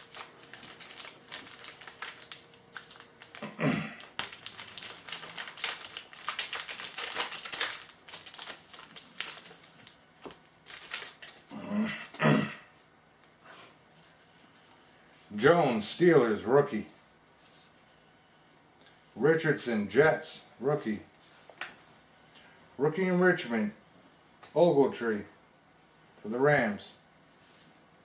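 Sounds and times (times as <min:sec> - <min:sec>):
card pack wrapper tearing: 0:00.0 - 0:10.0, 0:10.6 - 0:11.5.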